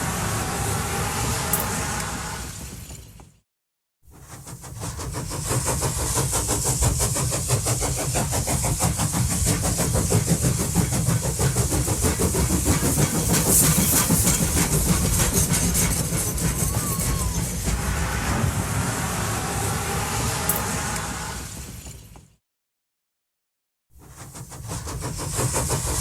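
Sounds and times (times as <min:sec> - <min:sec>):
locomotive hiss: 0:00.0 - 0:03.2, 0:04.2 - 0:22.3, 0:24.0 - 0:26.0
locomotive exhaust beats: 0:04.7 - 0:22.2.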